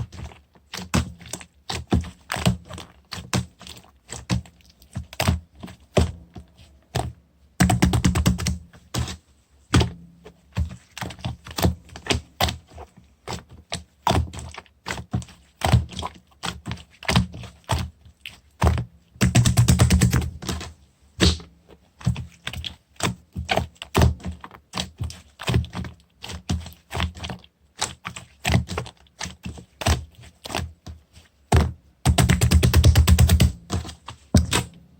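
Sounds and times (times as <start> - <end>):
dense slime crackling: 20.3 - 21.6.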